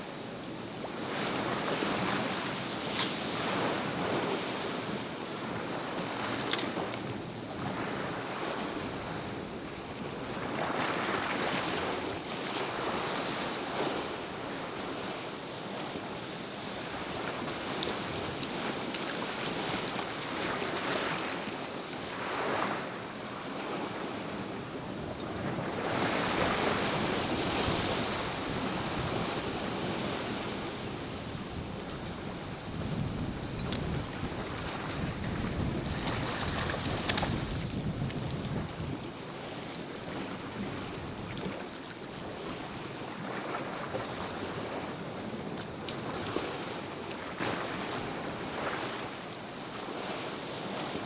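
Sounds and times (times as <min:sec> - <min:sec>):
sea waves washing in: 0:15.7 - 0:45.1
wind buffeting the microphone: 0:16.8 - 0:49.0.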